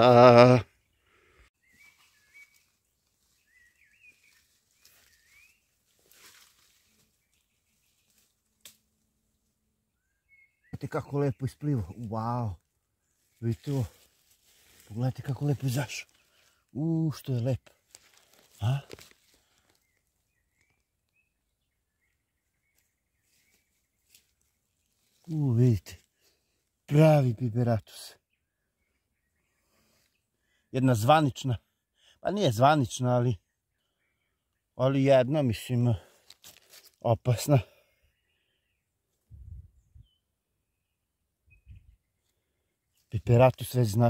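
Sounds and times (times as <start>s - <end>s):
faint bird song: 0.4s - 44.0s.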